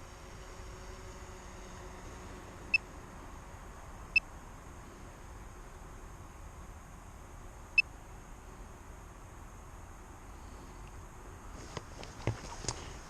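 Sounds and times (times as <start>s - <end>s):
faint hiss: 0.0s - 13.0s.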